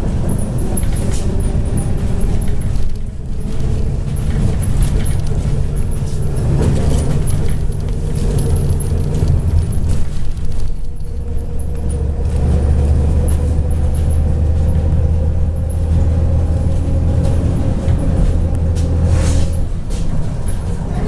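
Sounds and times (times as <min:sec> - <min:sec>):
bus diesel engine drone: 0:00.0 - 0:21.0.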